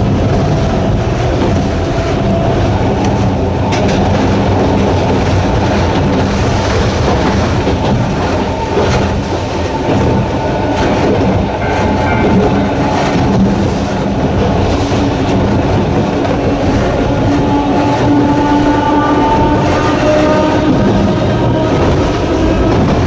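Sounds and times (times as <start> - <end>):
electric train motors growling: 0.0 - 23.0
wheels clicking over rail joints: 0.0 - 23.0.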